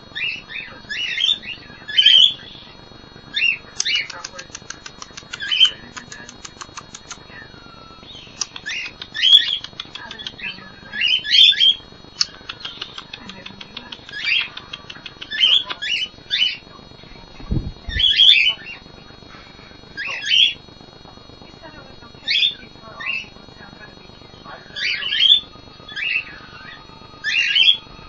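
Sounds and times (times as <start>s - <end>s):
rapid ticking chatter: 0.0s - 28.0s
cockatiels squawking: 3.3s - 16.6s, 17.9s - 18.8s, 20.0s - 20.6s, 22.2s - 23.4s, 24.6s - 27.9s.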